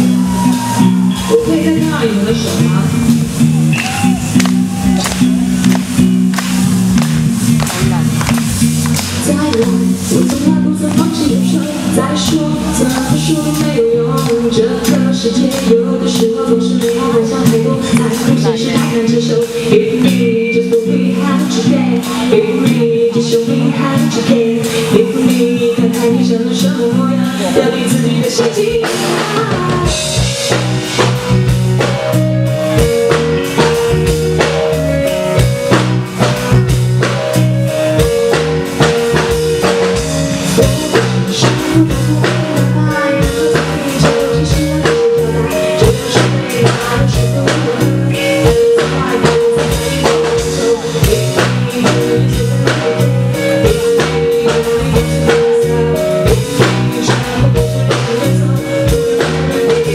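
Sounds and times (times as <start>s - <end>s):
live rock band playing: 0.0s - 59.9s
drum hits and rimshots: 2.0s - 11.5s, 28.4s - 59.9s.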